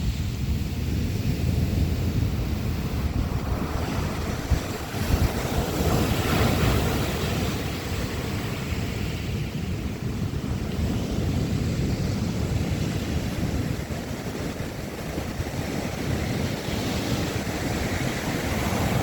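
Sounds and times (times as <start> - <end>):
ocean waves breaking: 0.0 - 19.0
wind buffeting microphone: 0.0 - 19.0.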